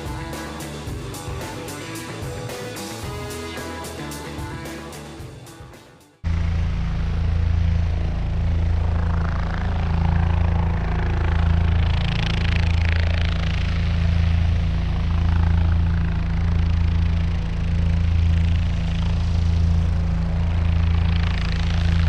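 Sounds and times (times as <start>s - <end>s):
small electric motor humming: 6.3s - 22.0s.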